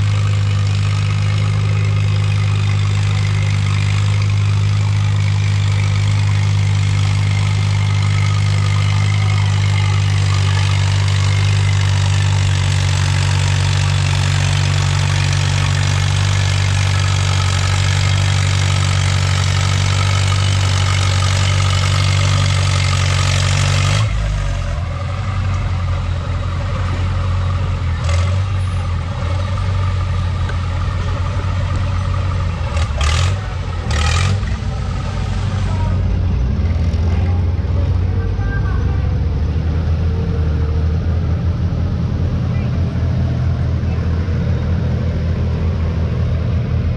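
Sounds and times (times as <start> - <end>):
tractor engine running hard: 0.0 - 46.9.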